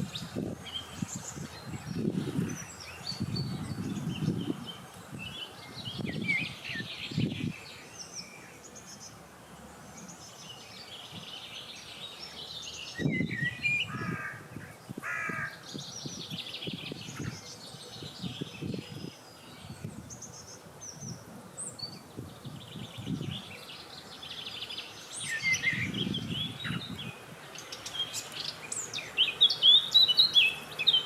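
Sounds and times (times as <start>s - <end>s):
birds chirping and trilling: 0.0s - 31.0s
wind rumbling on microphone: 0.0s - 31.0s
harsh repeated bird calls: 9.8s - 21.2s, 22.4s - 31.0s.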